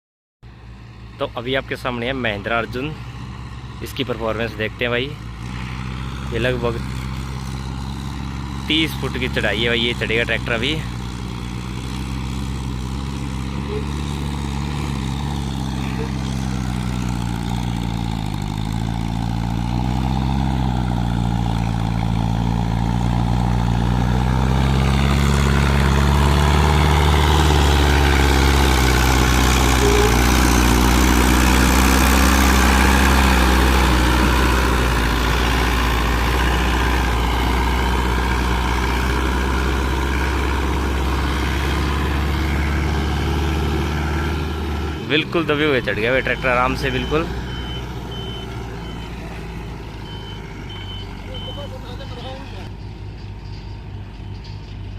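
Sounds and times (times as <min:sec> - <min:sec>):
tractor diesel engine under load: 0:00.4 - 0:54.9.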